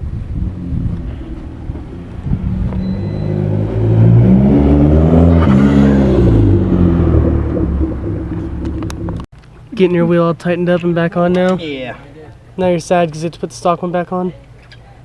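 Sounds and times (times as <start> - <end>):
car engine revving: 0.0 - 9.3.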